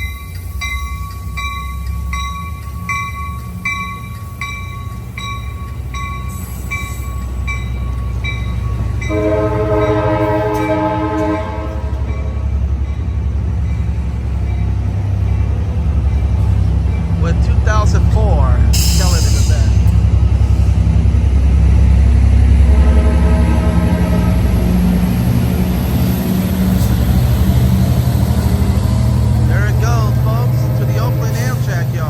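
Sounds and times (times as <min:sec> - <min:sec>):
train bell ringing: 0:00.0 - 0:20.1
diesel locomotive rumble: 0:00.0 - 0:32.0
multi-note train horn: 0:09.0 - 0:12.6, 0:22.5 - 0:25.2.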